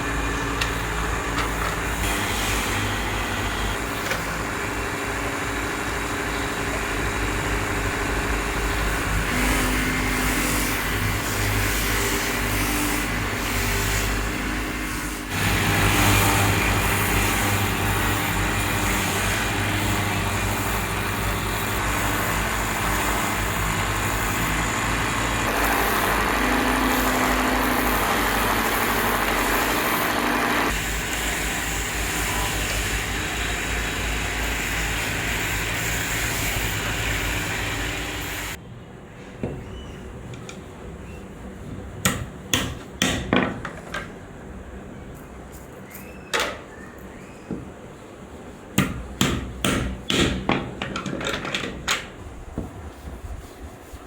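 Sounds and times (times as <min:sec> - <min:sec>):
woodworking machinery running: 0:00.0 - 0:38.6.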